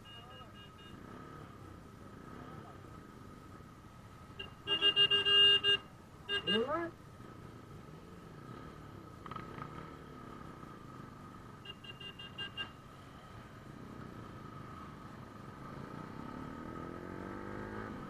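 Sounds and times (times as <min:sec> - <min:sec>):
short electronic beeps: 0:00.0 - 0:01.4
muffled motorcycle engine revving: 0:06.5 - 0:11.5, 0:13.4 - 0:18.0.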